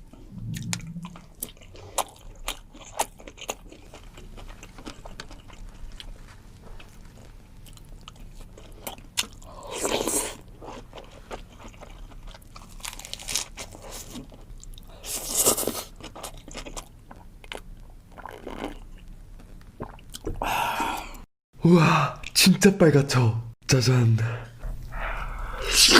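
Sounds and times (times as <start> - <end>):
crunchy food chewing: 1.5 - 20.3.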